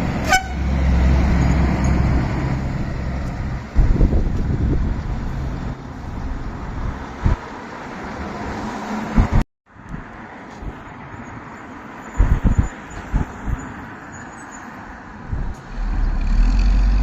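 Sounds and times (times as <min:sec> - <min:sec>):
truck engine deep rumble: 0:00.0 - 0:08.4, 0:15.0 - 0:17.0
road and traffic noise: 0:00.0 - 0:17.0
wind thumps on microphone: 0:03.6 - 0:05.3, 0:09.1 - 0:10.0, 0:12.2 - 0:13.6.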